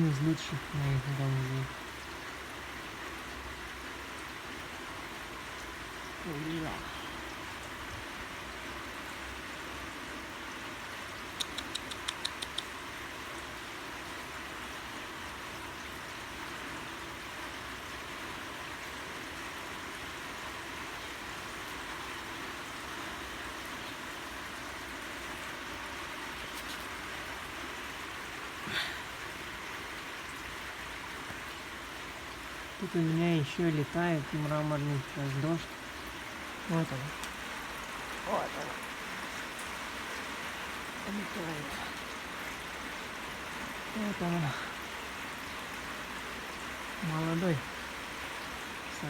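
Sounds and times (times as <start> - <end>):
rain falling: 0.0 - 49.0
sharp clicks: 11.4 - 12.7.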